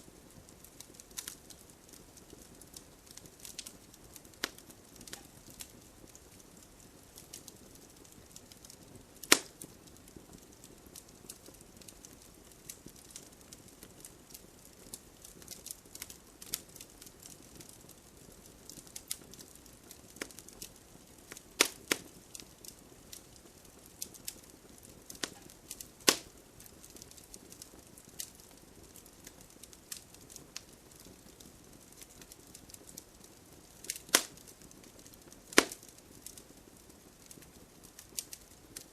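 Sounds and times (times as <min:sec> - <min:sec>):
campfire crackling: 0:00.0 - 0:38.9
faint steady hiss: 0:00.0 - 0:38.9
fire snaps and pops: 0:00.0 - 0:38.9.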